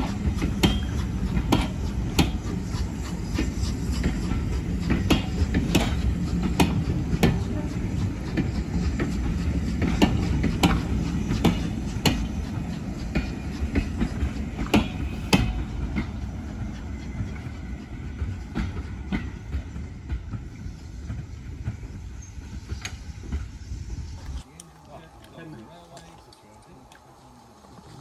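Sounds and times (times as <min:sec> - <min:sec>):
train wheel rumble: 0:00.0 - 0:28.0.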